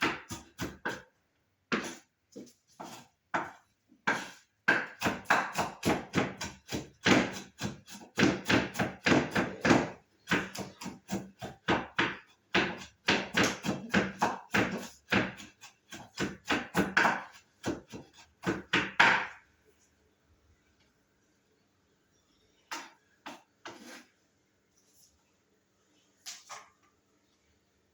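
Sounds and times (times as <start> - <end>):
knife chopping on wooden board: 0.0 - 1.1, 1.7 - 19.4.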